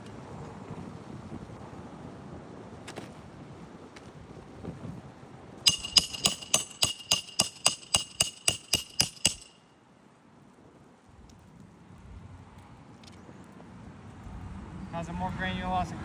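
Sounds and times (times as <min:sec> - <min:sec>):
hammer striking metal: 0:05.7 - 0:09.6.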